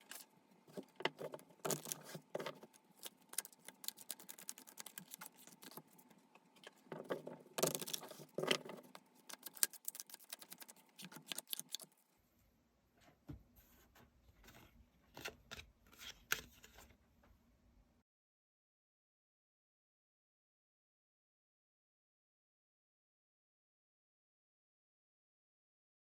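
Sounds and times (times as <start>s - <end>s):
cards being shuffled: 0.0s - 6.1s, 7.0s - 11.9s.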